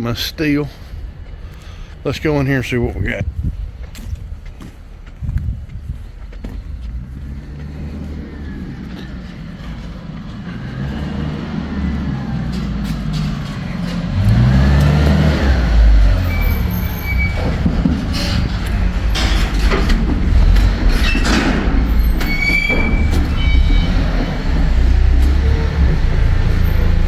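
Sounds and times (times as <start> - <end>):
truck engine rumbling: 0.0 - 27.0
rattles and knocks: 9.1 - 27.0
short high squeaks: 16.2 - 17.6, 21.0 - 24.8.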